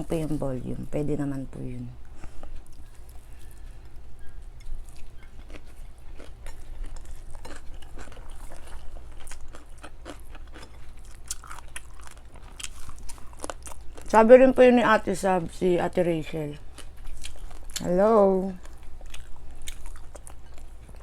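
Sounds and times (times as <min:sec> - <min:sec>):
person chewing and crunching food: 0:02.1 - 0:14.5, 0:16.6 - 0:21.0.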